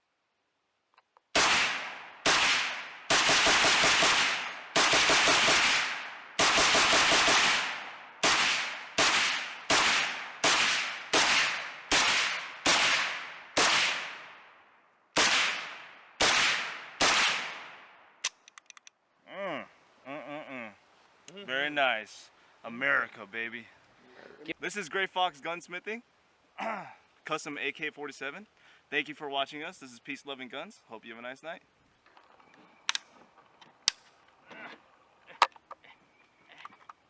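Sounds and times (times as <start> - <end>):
rifle shots ringing: 1.4 - 14.4, 15.2 - 17.9.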